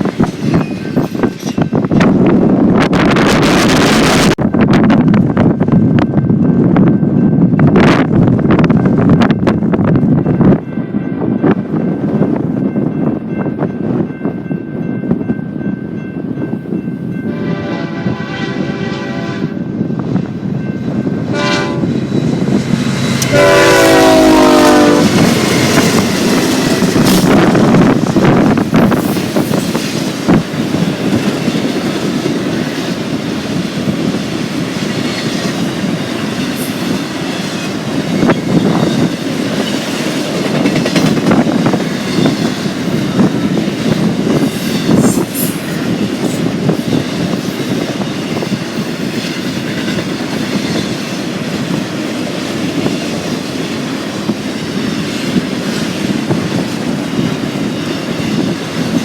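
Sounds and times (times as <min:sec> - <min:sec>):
freight train cars rolling: 0:00.0 - 0:59.0
wheels clacking over rail joints: 0:34.9 - 0:45.2.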